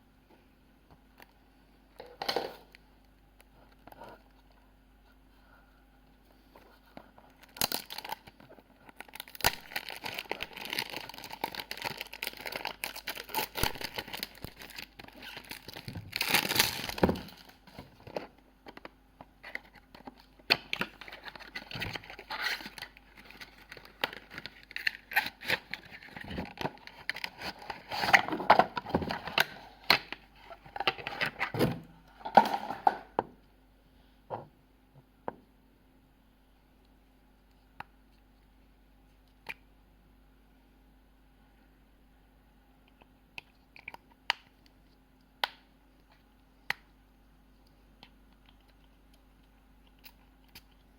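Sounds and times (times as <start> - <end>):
packaging crinkling and tearing: 7.4 - 18.3, 19.4 - 31.6.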